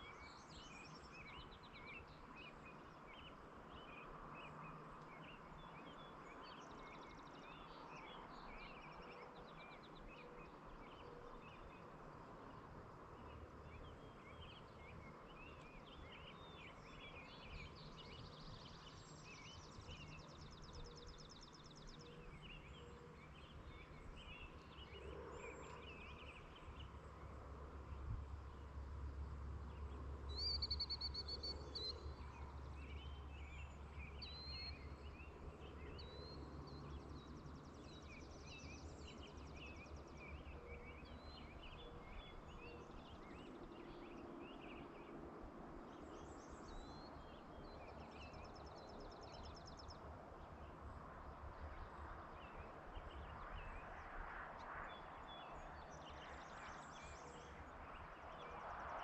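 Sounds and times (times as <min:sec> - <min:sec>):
small birds chirping and trilling: 0:00.0 - 0:12.6, 0:13.2 - 0:28.6, 0:29.6 - 0:45.2.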